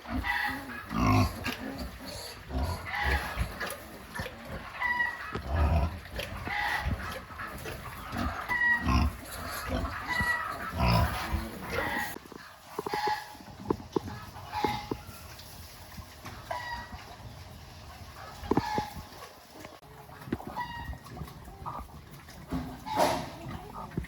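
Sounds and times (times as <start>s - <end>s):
pigs grunting: 0.0s - 15.0s.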